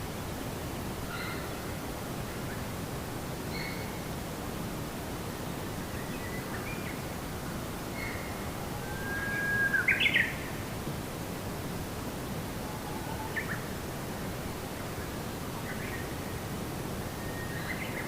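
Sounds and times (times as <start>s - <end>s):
steady forest hiss: 0.0s - 18.0s
songbird calls: 1.1s - 1.6s, 3.5s - 4.0s, 8.0s - 10.5s.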